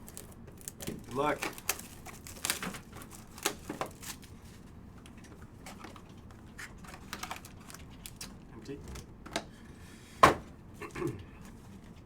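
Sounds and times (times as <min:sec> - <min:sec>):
card packs being torn open: 0:00.0 - 0:04.3, 0:07.0 - 0:08.3
cards crinkling and clicking: 0:00.0 - 0:04.3, 0:06.7 - 0:08.4.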